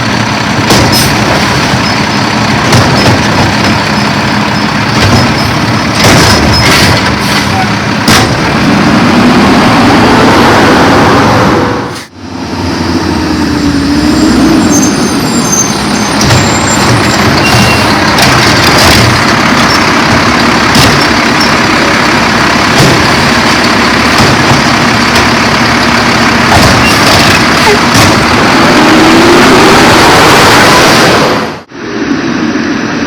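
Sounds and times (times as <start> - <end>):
garbage truck engine revving: 0.0 - 33.0
knocks: 2.6 - 3.9, 4.9 - 7.2.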